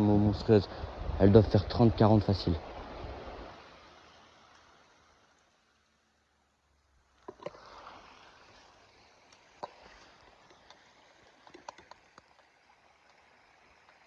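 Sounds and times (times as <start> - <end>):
small river flowing: 0.0 - 14.0
sharp clicks and knocks: 11.4 - 12.5.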